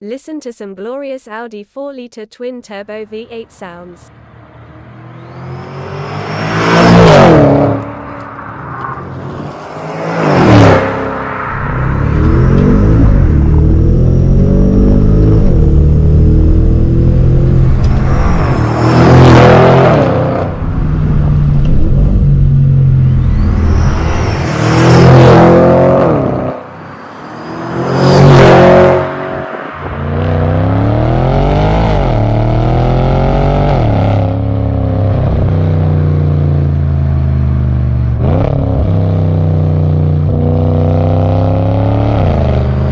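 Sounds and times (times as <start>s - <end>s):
car exhaust revving: 4.2s - 36.3s.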